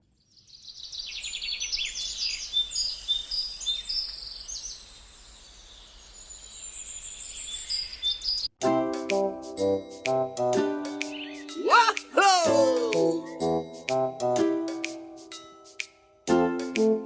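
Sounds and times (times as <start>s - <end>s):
birds chirping and trilling: 0.2s - 8.6s, 10.9s - 11.9s
music: 8.6s - 17.0s.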